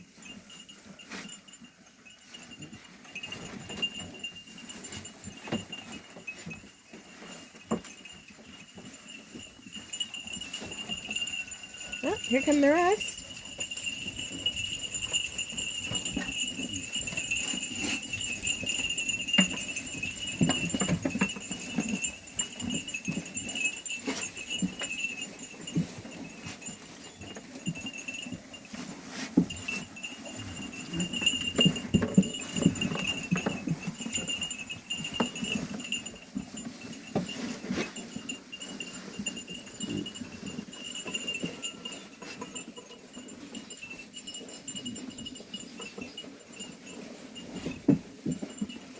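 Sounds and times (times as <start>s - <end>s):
hoof clicks and taps: 0.0s - 48.9s.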